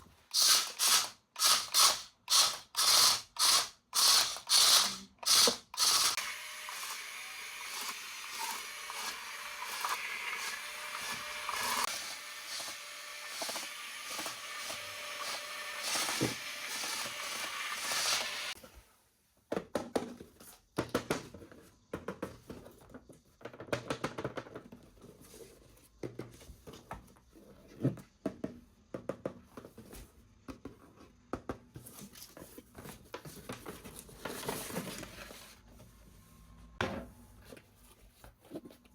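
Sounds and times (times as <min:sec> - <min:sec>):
toy motor whirring: 0:00.3 - 0:18.6.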